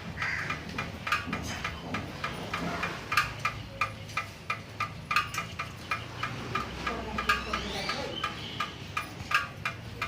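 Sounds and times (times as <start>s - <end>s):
steady ticking: 0.0s - 10.0s.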